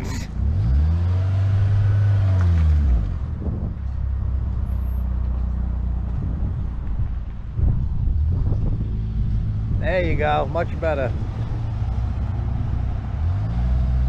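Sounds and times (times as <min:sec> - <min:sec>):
car engine revving: 0:00.0 - 0:03.2, 0:10.6 - 0:14.0.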